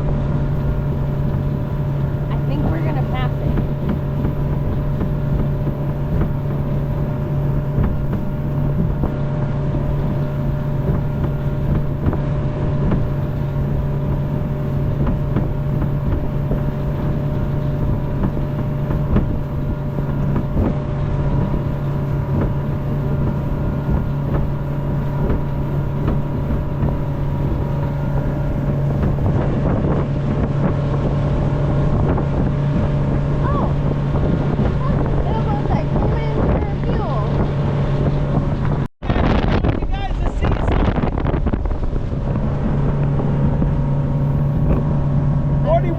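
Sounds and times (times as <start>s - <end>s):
motorboat engine humming: 0.0s - 45.9s
wind buffeting microphone: 0.0s - 45.9s.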